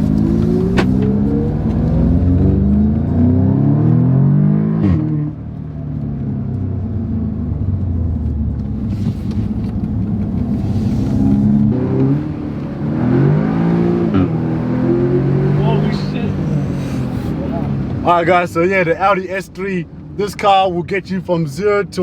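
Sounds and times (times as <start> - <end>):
gearbox shift crack: 0.0 - 1.8
car engine accelerating: 0.0 - 20.2.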